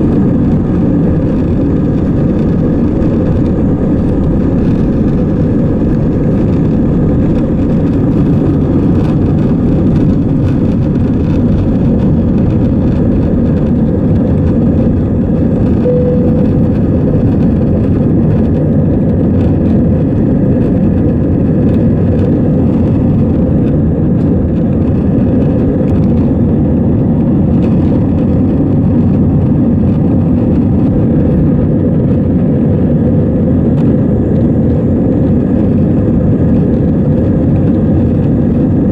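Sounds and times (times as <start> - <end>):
aircraft cabin engine rumble: 0.0 - 38.9
faint tone: 15.8 - 17.0.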